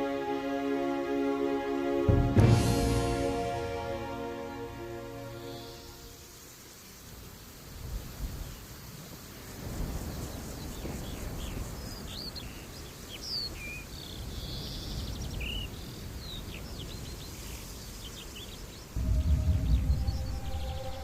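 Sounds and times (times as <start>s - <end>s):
birds chirping and whistling: 18.4s - 21.0s
steady low rumble: 19.0s - 21.0s.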